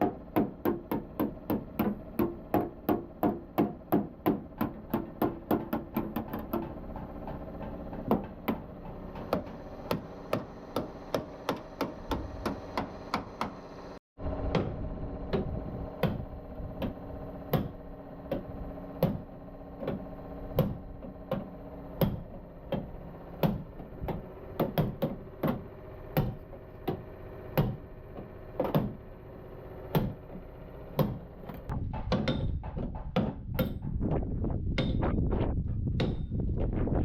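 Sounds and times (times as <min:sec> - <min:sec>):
steady hum: 0:06.0 - 0:32.4
hammer blows on sheet metal: 0:31.0 - 0:36.6.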